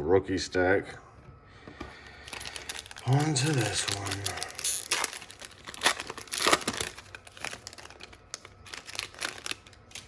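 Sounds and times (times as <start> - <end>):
wrapper crinkling and tearing: 2.2 - 10.0.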